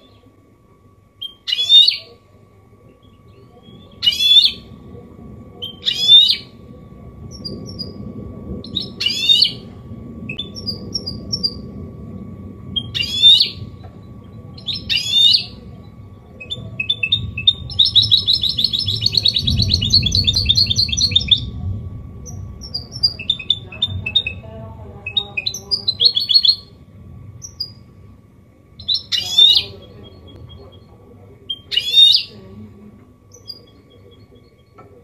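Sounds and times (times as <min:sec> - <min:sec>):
finch hybrid singing: 0:02.9 - 0:04.8, 0:05.6 - 0:06.6, 0:10.3 - 0:11.6, 0:12.8 - 0:13.8, 0:14.5 - 0:21.6, 0:22.2 - 0:26.8, 0:28.8 - 0:32.5.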